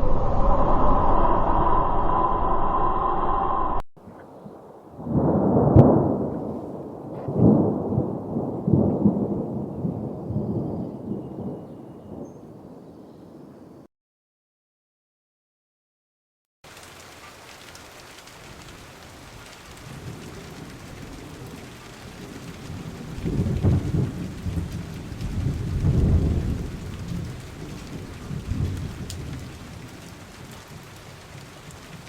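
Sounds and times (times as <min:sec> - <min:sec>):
thunder rumbling: 0:00.0 - 0:03.8, 0:04.5 - 0:13.4, 0:18.4 - 0:32.0
steady rain: 0:16.6 - 0:32.0.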